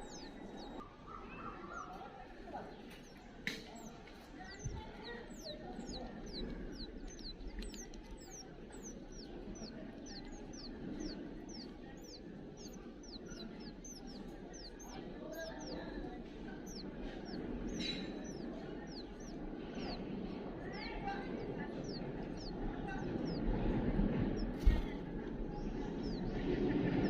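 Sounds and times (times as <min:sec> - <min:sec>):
bird calling: 0:00.0 - 0:02.2, 0:02.8 - 0:27.0
low steady background noise: 0:00.0 - 0:27.0.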